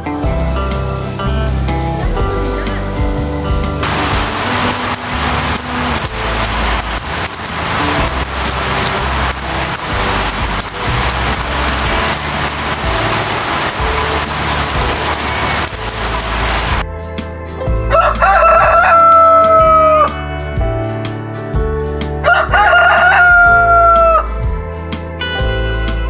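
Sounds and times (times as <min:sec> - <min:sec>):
heavy rain on car windscreen: 0:03.8 - 0:16.8.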